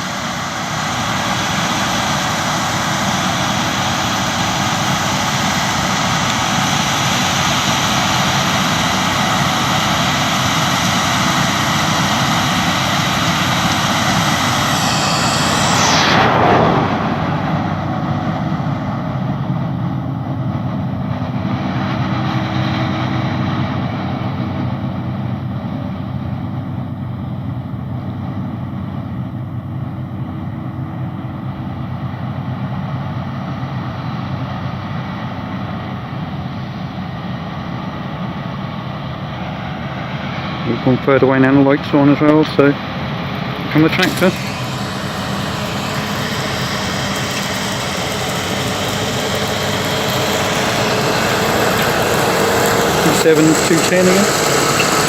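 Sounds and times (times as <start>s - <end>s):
combine harvester drone: 0.0s - 55.0s
something passing close by: 13.8s - 18.8s.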